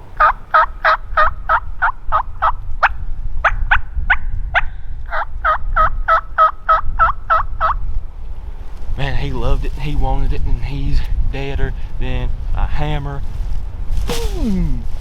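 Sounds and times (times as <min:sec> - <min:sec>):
turkey call hen notes: 0:00.1 - 0:07.8.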